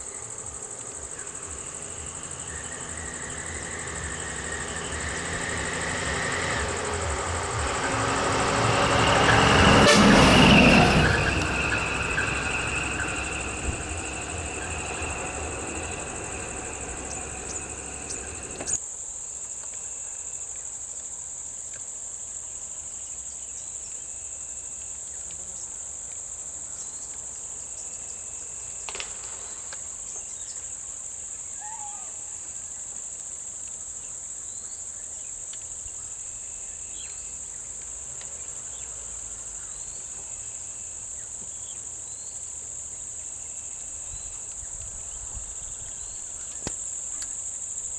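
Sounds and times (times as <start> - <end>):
faint chirps: 0.0 - 18.8
insects droning: 0.0 - 18.8, 35.6 - 47.9
vehicle engine running: 0.0 - 18.8.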